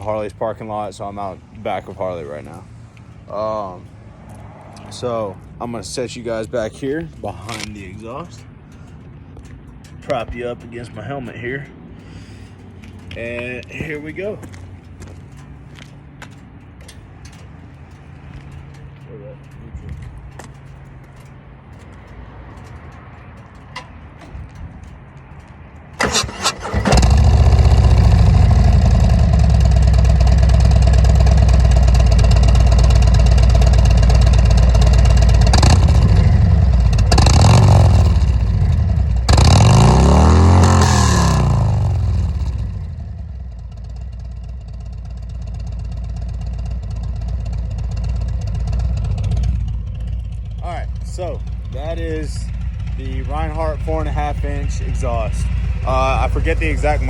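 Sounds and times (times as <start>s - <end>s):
motorcycle idling: 0.0s - 57.0s
motorcycle throttle blips: 12.6s - 57.0s
motorcycle engine cranking: 16.3s - 57.0s.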